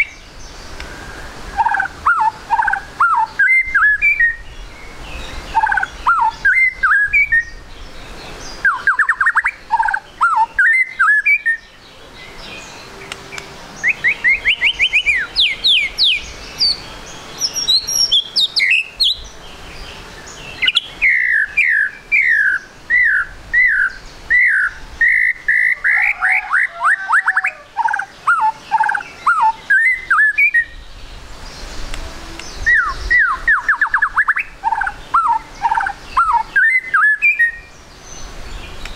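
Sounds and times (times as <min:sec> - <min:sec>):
bird singing whistled phrases: 0:01.6 - 0:04.6, 0:05.6 - 0:07.6, 0:08.6 - 0:11.8, 0:13.8 - 0:19.3, 0:20.2 - 0:30.9, 0:32.4 - 0:37.7.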